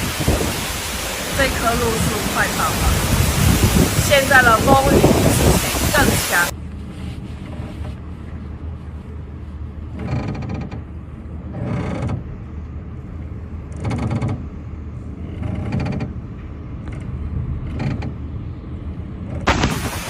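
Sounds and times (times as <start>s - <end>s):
strong wind gusts: 0.0s - 9.9s, 18.2s - 20.0s
rain: 0.0s - 10.1s, 19.4s - 20.0s.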